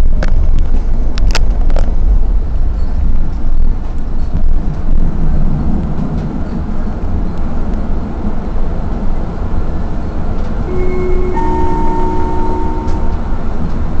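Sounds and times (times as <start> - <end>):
tram wheels rumbling on rails: 0.0 - 14.0
steady tone: 10.7 - 13.6.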